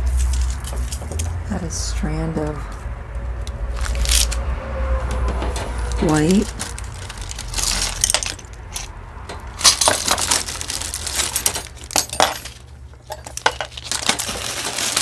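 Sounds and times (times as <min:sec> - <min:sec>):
jewelry and beads clinking: 0:00.0 - 0:01.4, 0:03.7 - 0:04.4, 0:05.6 - 0:15.0.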